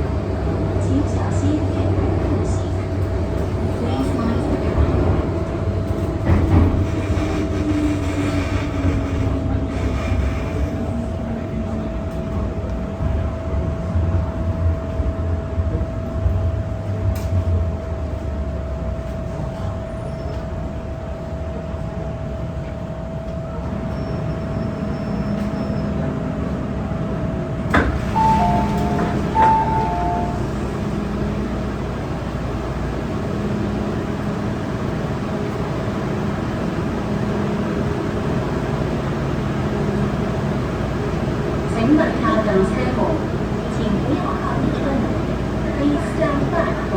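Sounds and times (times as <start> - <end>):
train rumble and hum: 0.0 - 46.9
two-note electronic chime: 28.2 - 30.5.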